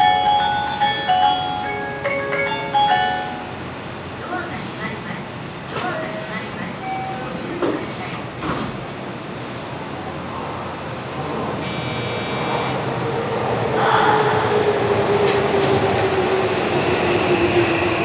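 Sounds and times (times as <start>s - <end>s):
train wheel and running noise: 3.8s - 11.6s.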